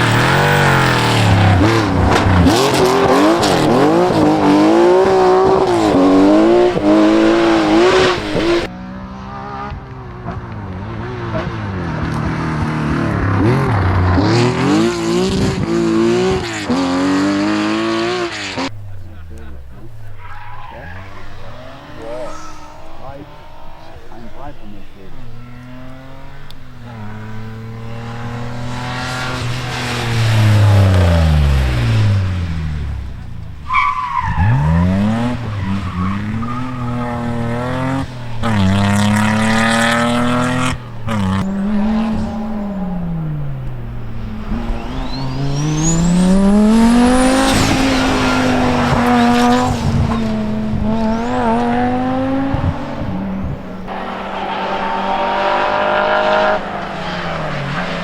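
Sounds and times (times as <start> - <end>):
rally car engines revving: 0.0 - 58.0
high rising whine: 21.0 - 25.7.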